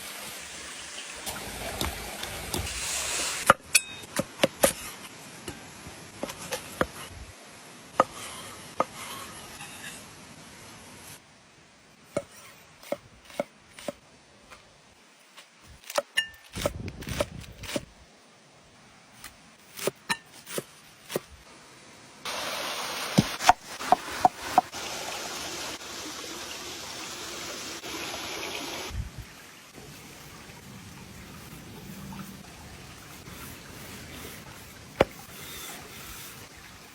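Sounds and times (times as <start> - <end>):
steady cooking hiss: 0.0 - 3.5, 21.2 - 29.0.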